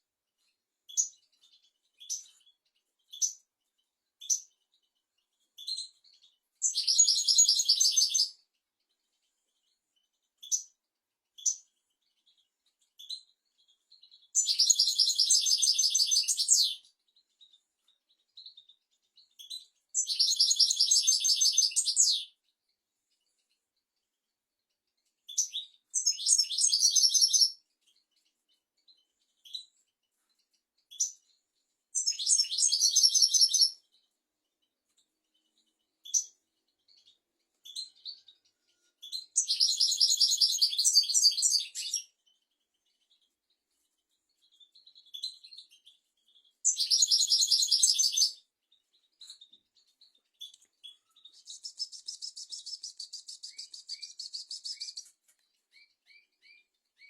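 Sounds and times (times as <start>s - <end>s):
goldfinch twittering song: 0.9s - 3.5s, 4.2s - 10.8s, 11.4s - 22.5s, 25.2s - 31.4s, 32.0s - 34.1s, 35.2s - 43.4s, 44.1s - 57.0s
buzzy bird trill: 6.6s - 8.3s, 14.3s - 16.9s, 19.4s - 22.4s, 25.3s - 27.6s, 32.0s - 33.8s, 36.0s - 42.1s, 44.4s - 55.1s.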